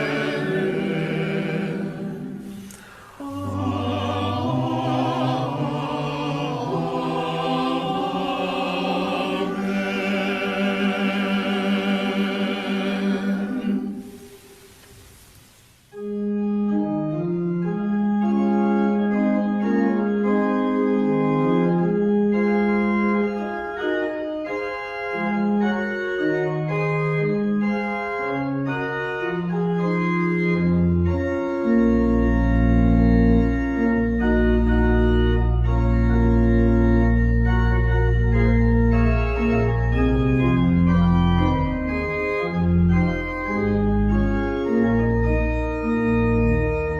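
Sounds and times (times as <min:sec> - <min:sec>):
organ playing held chords: 0:00.0 - 0:14.4, 0:15.9 - 0:46.9
choir singing: 0:00.0 - 0:14.5.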